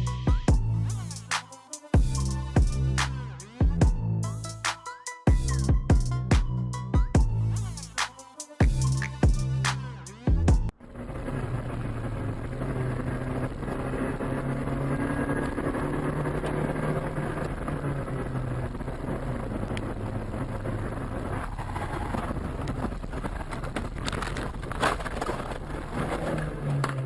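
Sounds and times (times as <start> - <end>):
car engine hum: 8.7 - 27.0
tyre and wind noise: 11.5 - 27.0.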